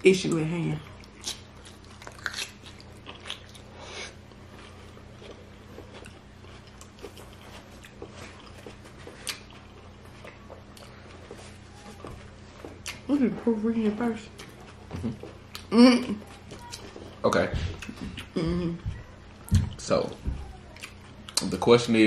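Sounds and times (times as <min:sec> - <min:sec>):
faint low hum: 0:00.0 - 0:22.0
chewing and biting: 0:01.0 - 0:11.4, 0:20.7 - 0:21.5.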